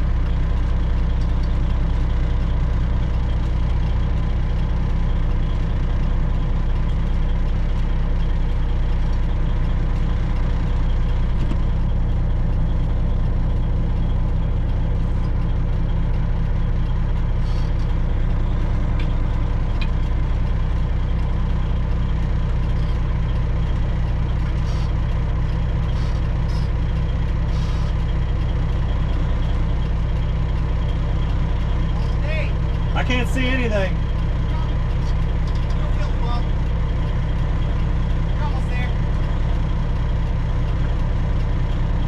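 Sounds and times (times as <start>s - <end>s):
truck diesel engine running: 0.0s - 42.0s.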